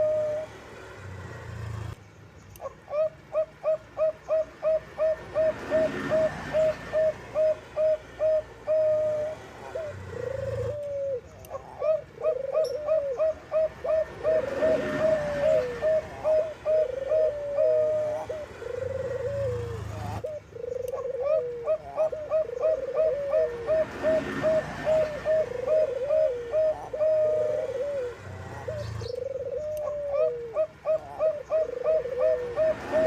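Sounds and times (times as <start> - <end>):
doves cooing: 0.0 - 2.0, 2.6 - 33.0.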